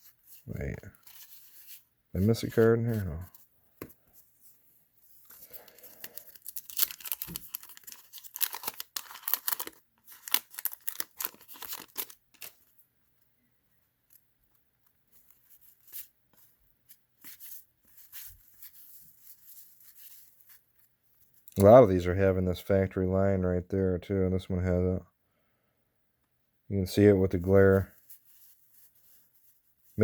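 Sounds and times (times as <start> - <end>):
cards rustling and ticking: 5.1 - 12.7, 14.0 - 21.8
paper wrapper ripping and crinkling: 5.2 - 12.7.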